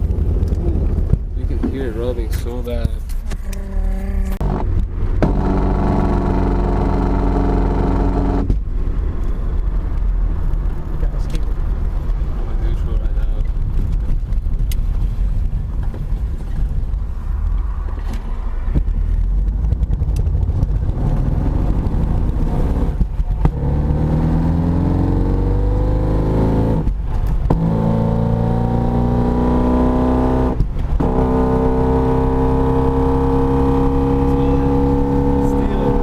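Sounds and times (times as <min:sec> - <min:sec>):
car engine drone: 0:00.0 - 0:36.0
differential rubbing: 0:03.0 - 0:08.5.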